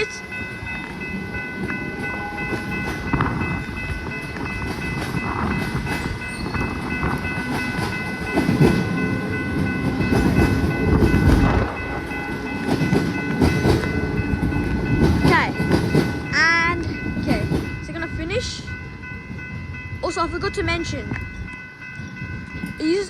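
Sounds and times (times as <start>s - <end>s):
crossing bells ringing: 0.0s - 23.0s
wind buffeting microphone: 0.2s - 23.0s
train wheels clattering: 0.4s - 18.6s.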